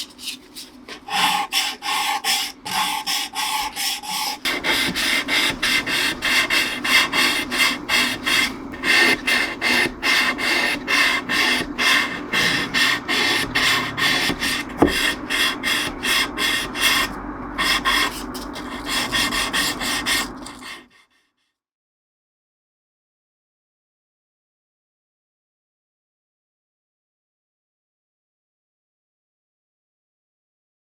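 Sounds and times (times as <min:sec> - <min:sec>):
abrading strokes on wood: 0:00.0 - 0:20.9.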